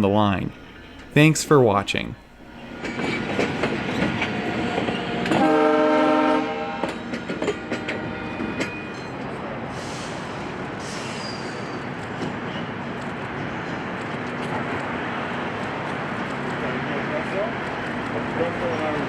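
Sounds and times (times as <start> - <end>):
train horn chord: 0.0 - 8.6
train running hiss: 0.0 - 19.0
train wheels clicking on rails: 0.0 - 19.0.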